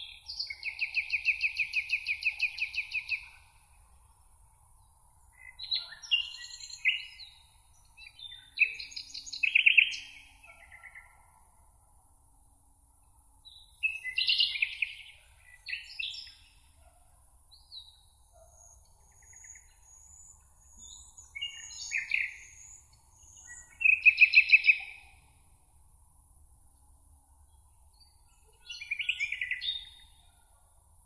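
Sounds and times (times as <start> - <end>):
songbirds singing trilled notes: 0.0 - 3.6, 4.8 - 11.2, 13.5 - 16.7, 17.5 - 25.4, 27.4 - 30.3
faint high-pitched birdsong: 0.0 - 31.0.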